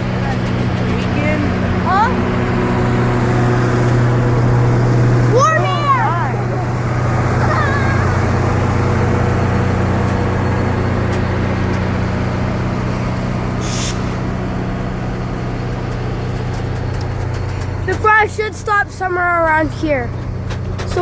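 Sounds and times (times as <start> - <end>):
train rolling with low hum: 0.0 - 21.0
short hiss: 13.6 - 14.2.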